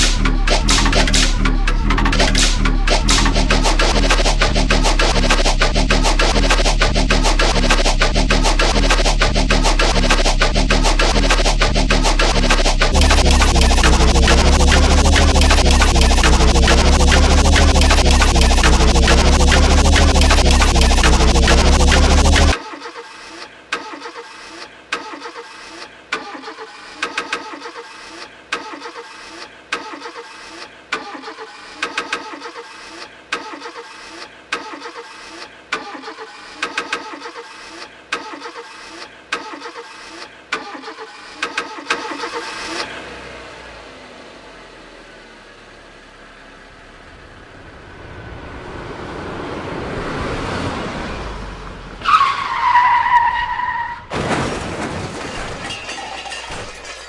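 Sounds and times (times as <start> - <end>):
chopped car engine loop: 0.0 - 22.6, 40.4 - 47.9
smooth engine noise: 0.0 - 22.6, 42.3 - 52.2.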